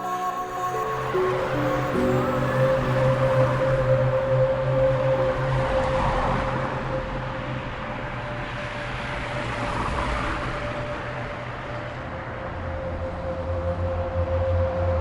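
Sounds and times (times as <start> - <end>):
held musical drone note: 0.0 - 9.3
car road and tyre noise: 5.4 - 14.0.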